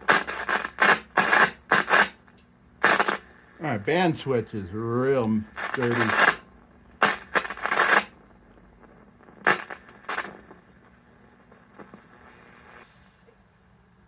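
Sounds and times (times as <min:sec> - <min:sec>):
scratchy static bursts: 0:00.0 - 0:12.8
faint steady hum: 0:00.0 - 0:14.0
radio switch clicks: 0:00.1 - 0:03.1, 0:07.0 - 0:08.1.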